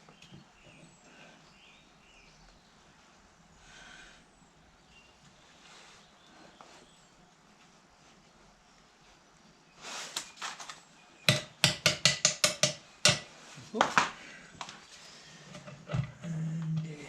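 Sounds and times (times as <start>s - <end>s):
short rustle: 5.3s - 10.9s.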